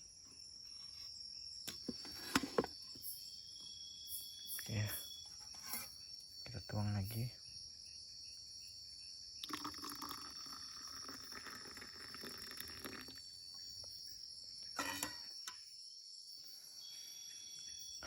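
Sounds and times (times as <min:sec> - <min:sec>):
forest insects chirring: 0:00.0 - 0:18.0
water being poured: 0:09.4 - 0:13.2.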